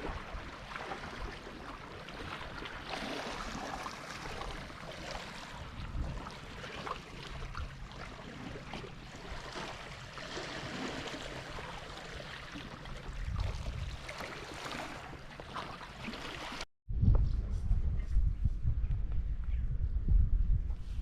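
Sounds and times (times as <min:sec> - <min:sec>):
sea water sloshing and splashing: 0:00.0 - 0:16.7
low rumble: 0:16.9 - 0:21.0.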